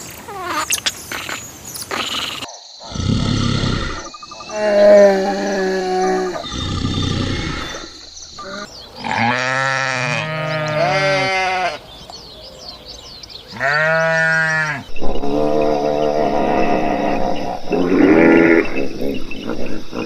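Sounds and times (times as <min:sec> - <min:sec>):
farm animals bleating: 0:03.9 - 0:11.8, 0:13.5 - 0:18.8.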